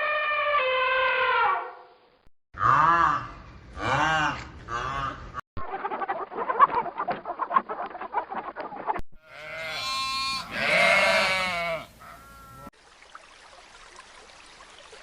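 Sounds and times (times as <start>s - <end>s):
goat bleating: 9.2s - 12.7s.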